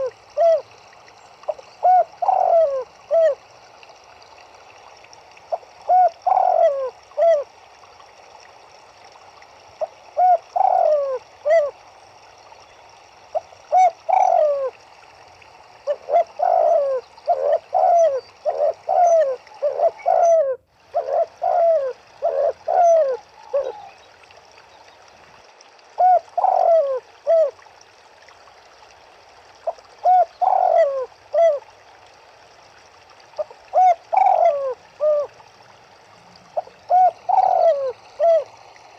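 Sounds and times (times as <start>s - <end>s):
doves cooing: 0.0s - 0.7s, 1.4s - 3.5s, 5.5s - 7.5s, 9.8s - 11.8s, 13.3s - 14.8s, 15.8s - 24.1s, 26.0s - 27.6s, 29.6s - 31.7s, 33.4s - 35.4s, 36.3s - 38.9s
running river water: 0.0s - 38.9s.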